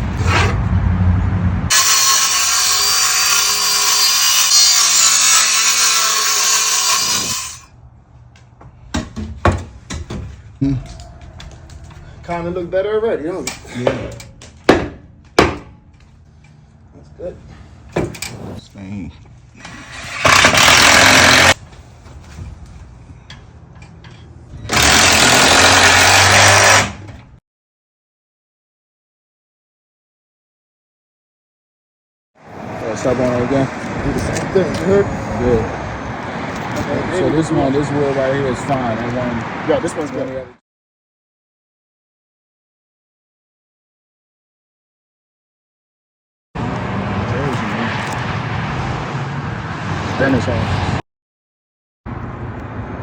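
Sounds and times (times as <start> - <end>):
power saw cutting wood: 1.7 - 7.7, 19.6 - 21.6, 24.7 - 27.1
sharp knocks: 13.9 - 15.8.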